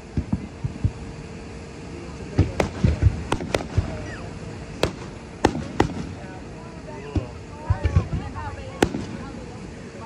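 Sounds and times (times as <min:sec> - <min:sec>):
firework thumps and booms: 0:02.4 - 0:04.0, 0:04.8 - 0:06.2
firework cracks: 0:02.4 - 0:04.1, 0:04.8 - 0:06.3, 0:08.7 - 0:09.3.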